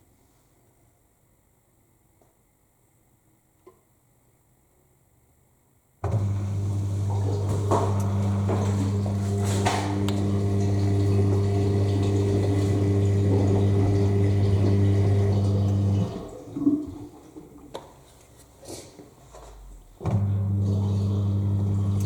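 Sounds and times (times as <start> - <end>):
drain pump humming: 6.0 - 17.6, 20.0 - 22.0
water gurgle: 6.2 - 18.0, 20.2 - 22.0
rushing water: 6.8 - 17.2.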